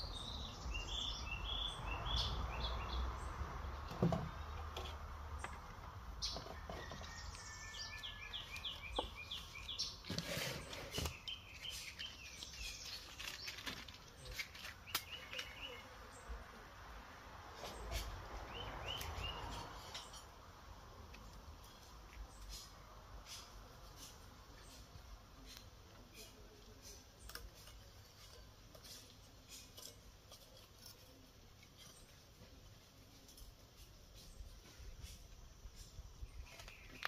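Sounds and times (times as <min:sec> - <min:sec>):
birds chirping: 0:00.0 - 0:16.6, 0:17.6 - 0:37.0.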